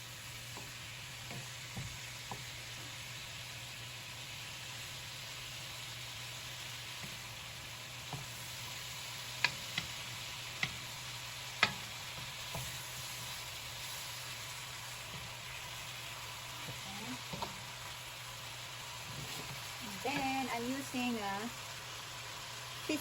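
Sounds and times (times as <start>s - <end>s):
meat sizzling in oil: 0.0s - 23.0s.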